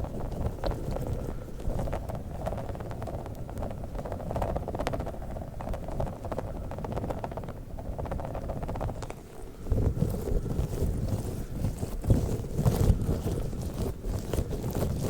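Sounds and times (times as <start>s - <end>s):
squishy balls squelching: 9.6s - 15.0s.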